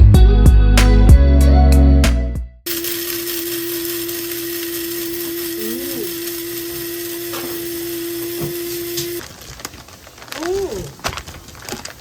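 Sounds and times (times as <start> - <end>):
small electric motor humming: 2.7 - 9.2.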